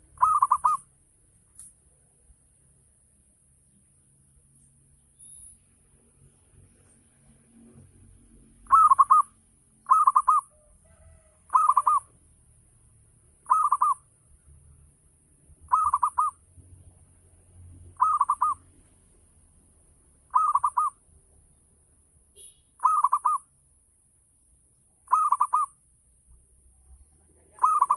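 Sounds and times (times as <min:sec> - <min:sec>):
dove cooing: 0:00.0 - 0:00.8, 0:08.7 - 0:12.1, 0:13.4 - 0:14.0, 0:15.7 - 0:16.4, 0:18.0 - 0:18.6, 0:20.3 - 0:21.0, 0:22.8 - 0:23.4, 0:25.1 - 0:25.8, 0:27.5 - 0:27.9.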